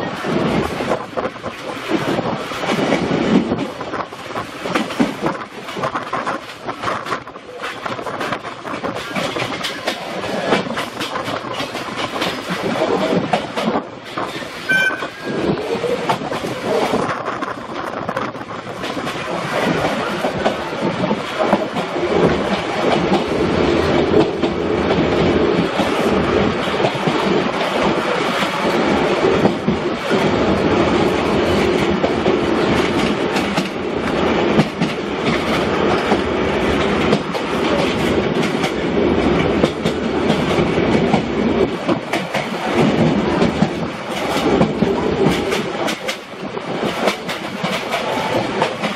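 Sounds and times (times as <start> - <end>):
train rolling rumble: 0.0 - 48.9
wheels clicking over rail joints: 0.0 - 48.9
wind noise: 0.0 - 48.9
brief high tone: 14.7 - 15.4.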